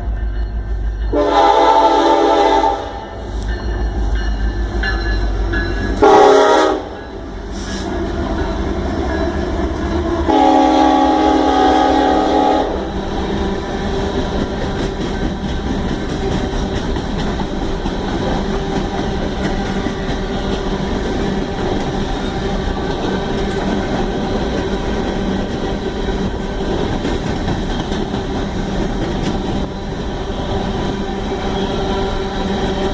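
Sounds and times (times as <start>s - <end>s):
passing train rumble: 0.0s - 32.9s
locomotive horn blasts: 1.1s - 3.2s, 6.0s - 7.1s, 10.3s - 12.9s.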